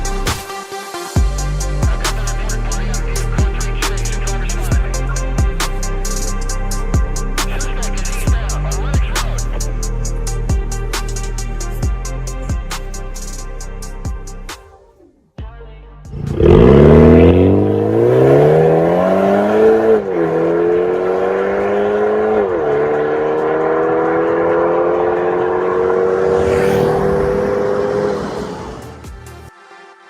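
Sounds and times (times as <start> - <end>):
car engine accelerating hard: 16.2 - 29.4.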